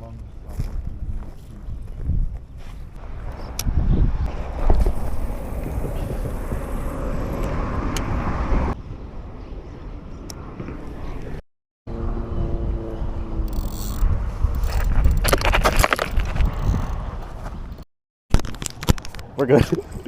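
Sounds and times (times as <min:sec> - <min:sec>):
steady low rumbling: 0:00.0 - 0:15.2.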